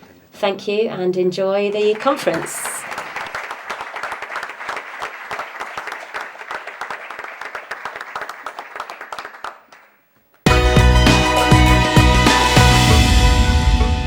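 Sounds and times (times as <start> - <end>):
audience applauding: 1.8 - 12.9.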